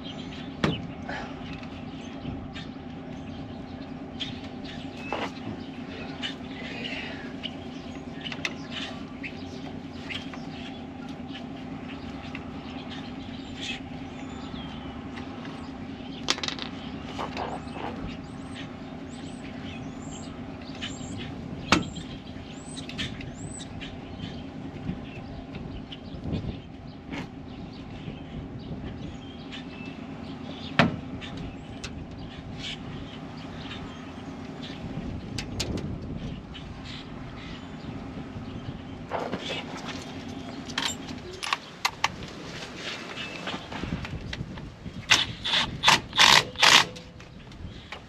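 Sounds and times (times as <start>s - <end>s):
birds chirping: 0.0s - 48.0s
low mechanical hum: 0.0s - 48.0s
sharp clicks and knocks: 35.3s - 36.1s.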